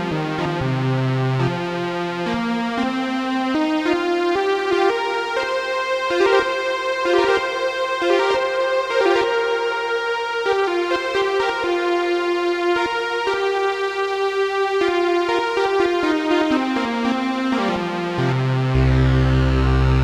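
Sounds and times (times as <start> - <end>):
synthesizer melody: 15.3 - 20.0.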